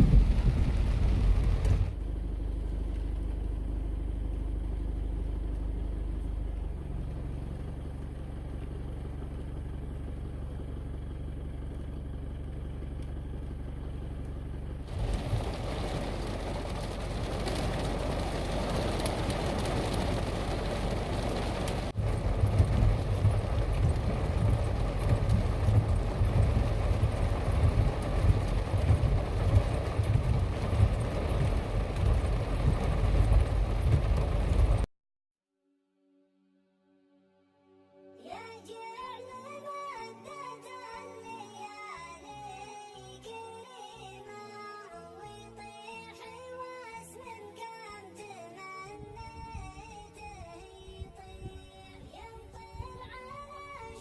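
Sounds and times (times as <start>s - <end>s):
rushing air or water: 0.0s - 2.0s
wind buffeting microphone: 0.0s - 2.0s, 22.0s - 34.8s
vehicle hum from inside: 0.0s - 34.9s, 48.6s - 54.0s.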